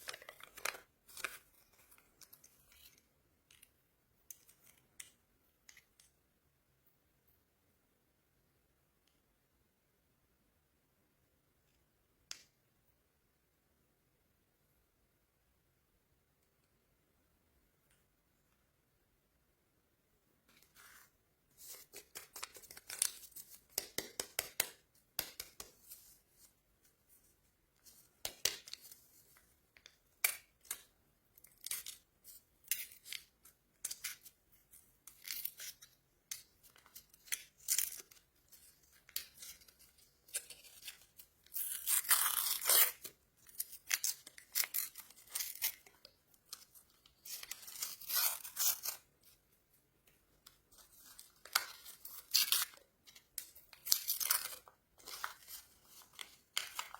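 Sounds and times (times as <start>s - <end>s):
plastic wrappers crinkling: 0.0s - 3.0s, 50.7s - 56.9s
plastic wrapper tearing: 38.9s - 49.0s.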